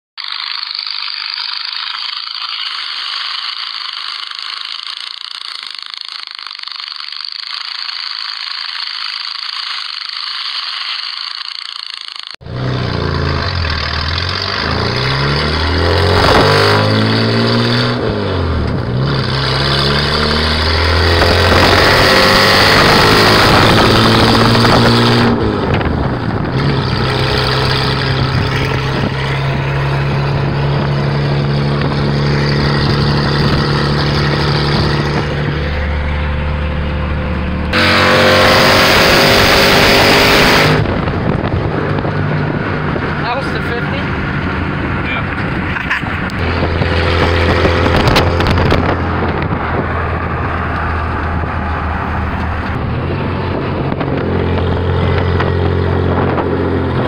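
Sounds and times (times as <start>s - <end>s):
thin high-pitched sound: 0.2s - 12.4s
engine revving: 9.5s - 57.0s.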